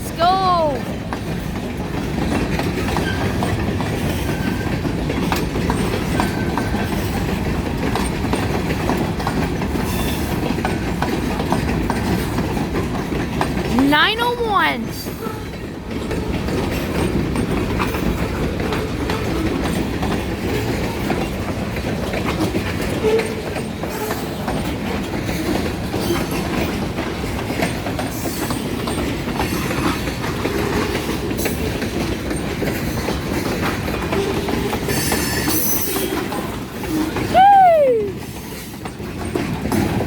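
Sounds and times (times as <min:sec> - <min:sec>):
freight train wheels clacking: 0:00.0 - 0:40.0.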